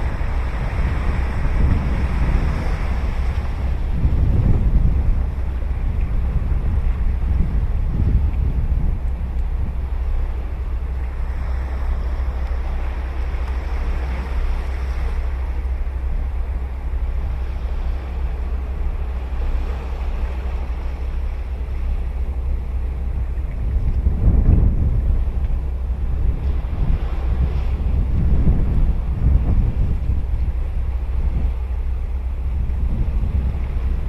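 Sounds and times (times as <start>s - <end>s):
ocean surf breaking on beach: 0.0s - 9.0s
wind rumble on microphone: 0.0s - 34.0s.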